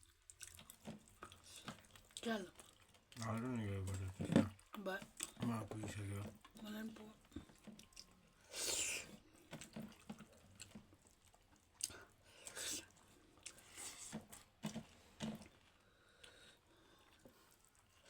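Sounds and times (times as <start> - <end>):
wet chewing and smacking: 0.0 - 18.0.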